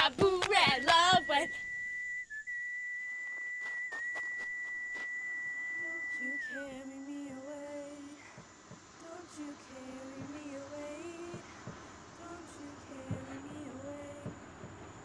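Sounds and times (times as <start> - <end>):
high whistled note: 0.7 - 7.3
person humming a slow tune: 5.8 - 8.4.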